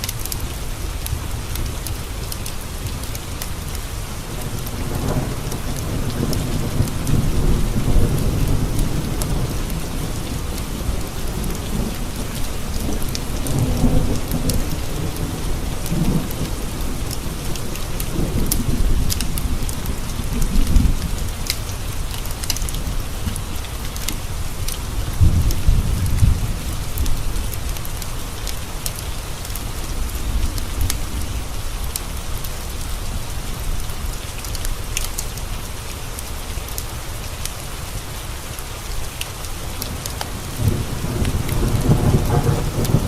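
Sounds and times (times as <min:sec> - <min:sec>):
rain tapping on windowpanes: 0:00.0 - 0:43.0
rolling thunder: 0:04.2 - 0:23.7, 0:24.3 - 0:27.8, 0:39.9 - 0:43.0.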